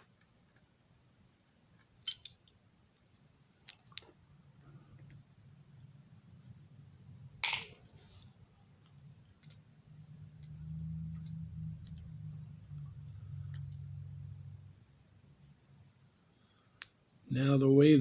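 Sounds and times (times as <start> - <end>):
low hum: 4.2 - 16.4.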